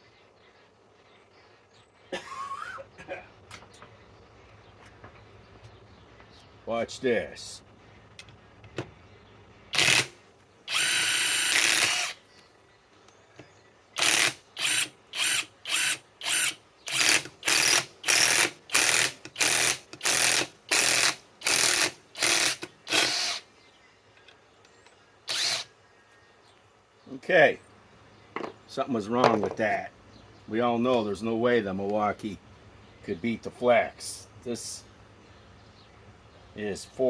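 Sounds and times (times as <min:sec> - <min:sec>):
impact wrench running: 0:09.8 - 0:12.2, 0:14.0 - 0:23.4, 0:25.3 - 0:25.7.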